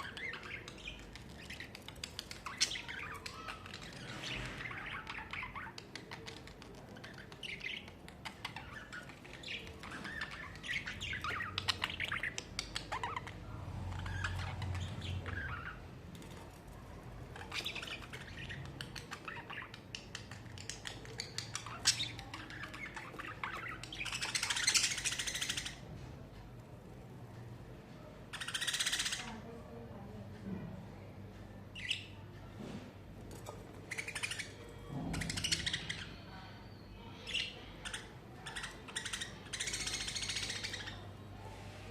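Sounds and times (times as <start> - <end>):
budgerigars chattering: 17.4 - 25.8, 28.3 - 29.4, 33.8 - 36.1, 37.2 - 41.1.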